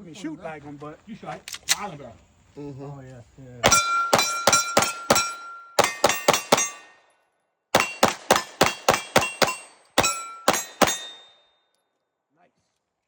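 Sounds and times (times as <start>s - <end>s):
pistol shots: 3.6s - 7.0s, 7.7s - 11.4s
metallic ringing of steel targets: 3.6s - 7.1s, 7.8s - 11.7s.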